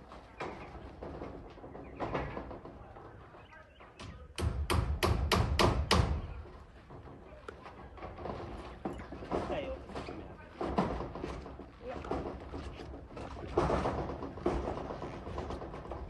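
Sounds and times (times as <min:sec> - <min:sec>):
hammer driving nails: 0:04.0 - 0:06.4.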